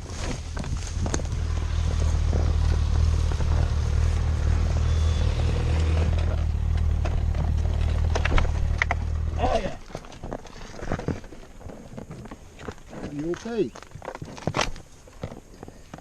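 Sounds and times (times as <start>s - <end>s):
engine idling: 1.2s - 9.8s.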